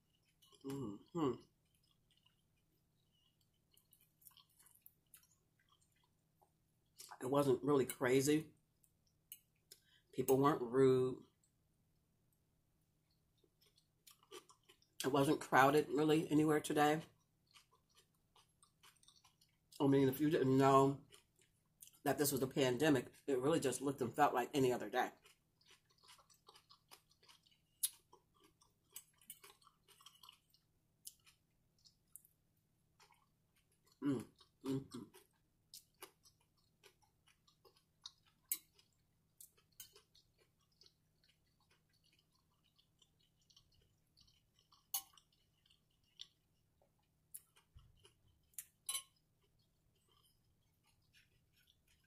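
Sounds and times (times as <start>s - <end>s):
faint chewing: 0.0s - 7.2s, 13.0s - 15.1s, 17.0s - 19.9s, 20.9s - 22.0s, 24.8s - 52.0s.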